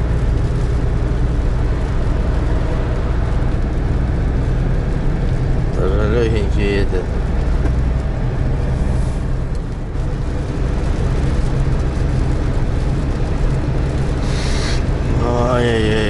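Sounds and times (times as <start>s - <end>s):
road and wind noise: 0.0s - 16.0s
truck engine drone: 0.0s - 16.0s.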